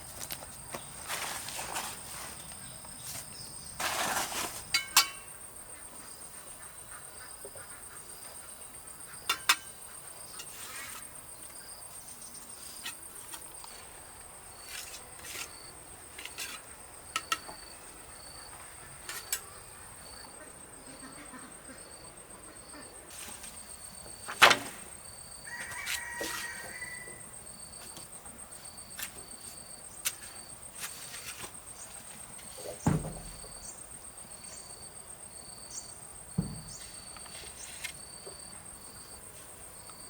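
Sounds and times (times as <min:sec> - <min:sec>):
insects trilling: 0:00.0 - 0:40.0
brief scrape: 0:03.8 - 0:04.7
chirping insect: 0:04.4 - 0:40.0
sharp knocks: 0:32.8 - 0:33.6, 0:36.4 - 0:36.8.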